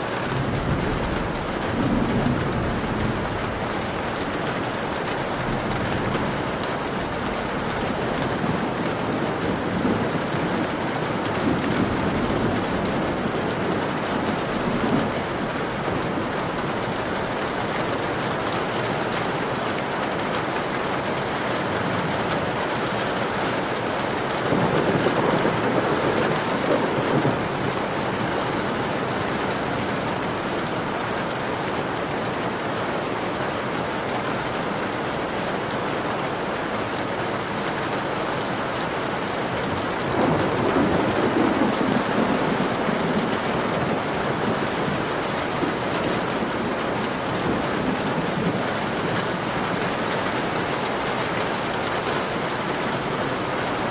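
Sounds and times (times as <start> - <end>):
heavy rain on a window: 0.0 - 53.9
low rolls of thunder: 0.1 - 18.5, 23.5 - 30.8, 39.6 - 53.9.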